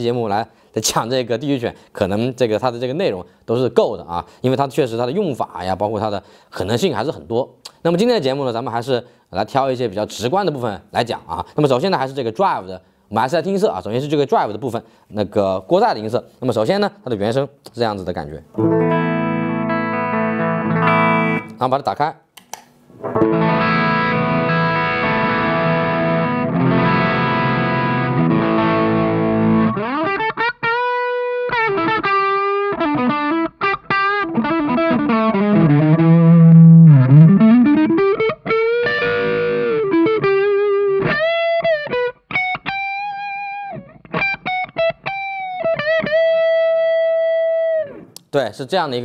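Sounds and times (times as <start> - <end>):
overdriven electric guitar: 18.6 - 21.6, 22.9 - 48.2.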